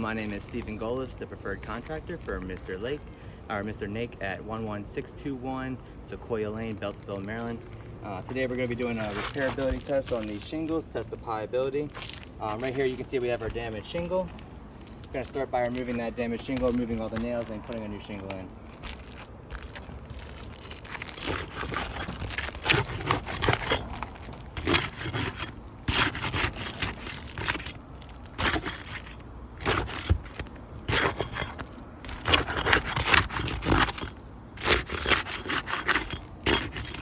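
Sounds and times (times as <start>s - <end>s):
scraping roof shingles: 7.1s - 10.9s, 11.8s - 37.0s.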